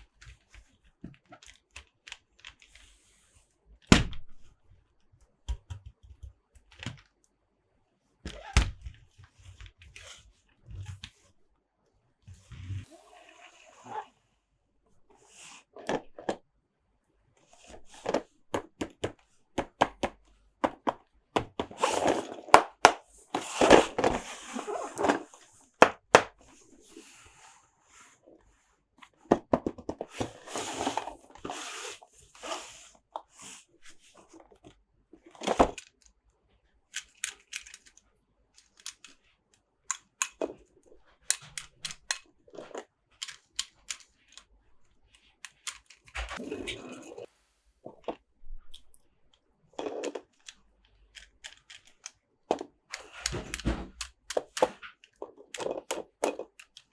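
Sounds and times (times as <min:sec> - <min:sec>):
plastic toys clicking and tapping: 0:00.0 - 0:03.0, 0:17.7 - 0:24.2, 0:25.8 - 0:26.5, 0:36.9 - 0:46.4, 0:48.8 - 0:56.9.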